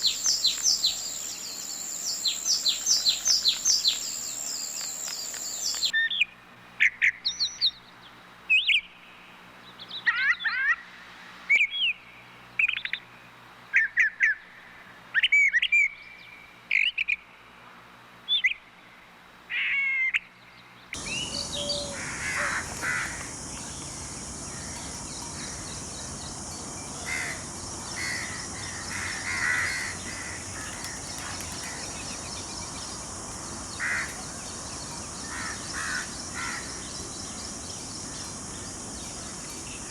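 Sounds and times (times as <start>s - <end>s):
bird calls and whistles: 0.0s - 6.3s, 21.0s - 23.9s
steady high hiss: 0.0s - 6.8s, 21.0s - 39.9s.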